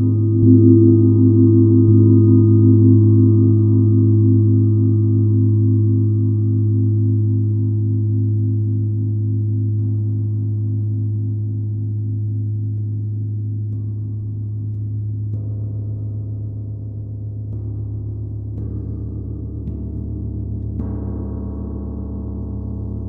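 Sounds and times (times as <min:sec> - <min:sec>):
deep gong tone: 0:00.0 - 0:08.0.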